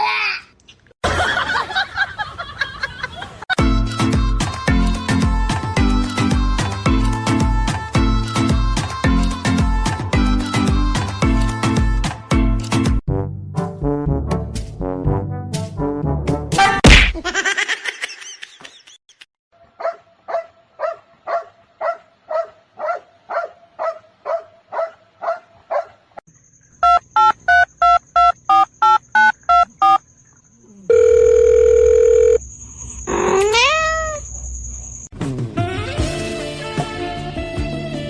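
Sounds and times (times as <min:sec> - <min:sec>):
harsh beeps: 0:26.8 - 0:30.0
pitched beeps: 0:26.8 - 0:30.0.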